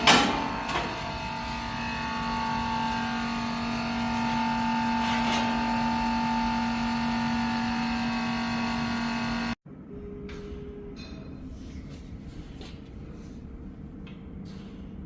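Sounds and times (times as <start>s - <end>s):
machinery electric hum: 0.0s - 15.0s.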